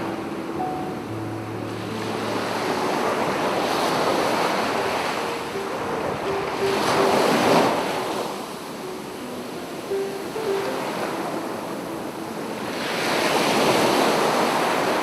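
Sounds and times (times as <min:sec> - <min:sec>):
sea waves washing onto shore: 0:00.0 - 0:15.0.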